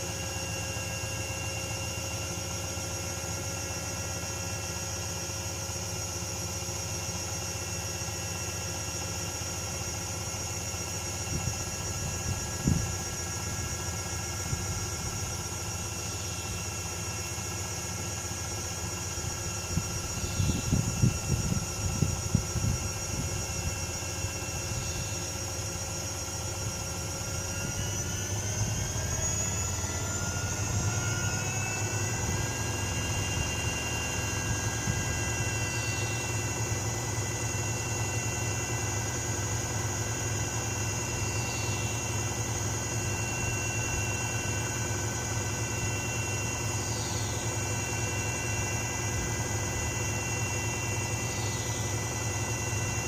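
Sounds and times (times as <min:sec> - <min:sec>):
washing machine motor whine: 0:00.0 - 0:53.0
low hum: 0:10.7 - 0:53.0.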